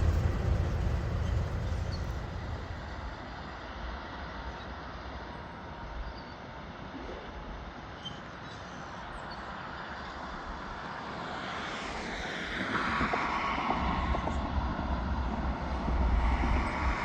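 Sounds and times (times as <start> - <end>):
low rumble: 0.0 - 3.4
passing train rushing: 0.0 - 3.7, 12.0 - 17.0.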